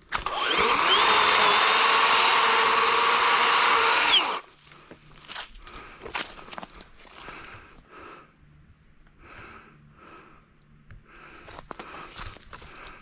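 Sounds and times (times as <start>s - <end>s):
chainsaw cutting a log: 0.0s - 4.5s.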